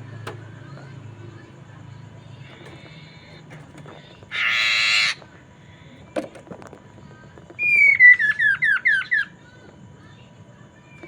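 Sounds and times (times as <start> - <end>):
bird singing harsh and whistled notes: 4.3 - 5.2, 7.6 - 9.4.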